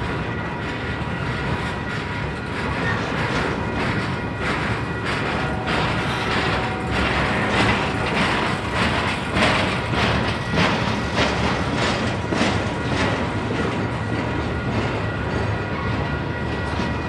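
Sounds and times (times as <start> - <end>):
train wheels rumbling on rails: 0.0 - 17.0
wheels clacking over rail joints: 0.0 - 17.0.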